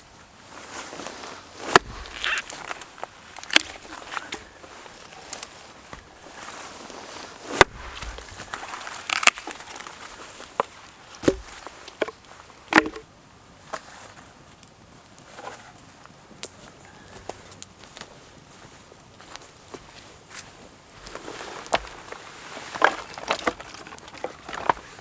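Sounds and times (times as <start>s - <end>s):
camp gear knocking and clattering: 1.6s - 4.9s, 7.5s - 13.1s, 21.1s - 25.0s.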